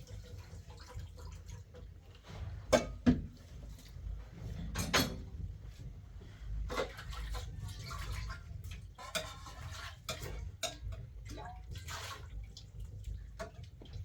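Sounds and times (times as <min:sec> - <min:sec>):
water splashing and dripping: 0:00.0 - 0:02.5, 0:06.7 - 0:14.0.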